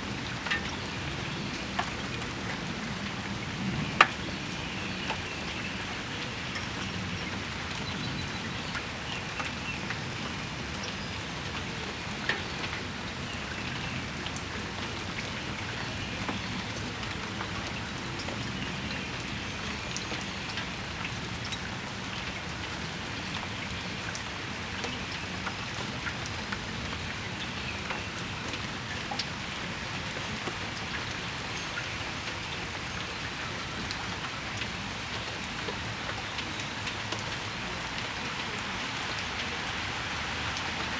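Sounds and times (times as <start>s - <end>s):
raindrops ticking: 0.0s - 40.9s
rain shower hissing: 30.4s - 40.9s.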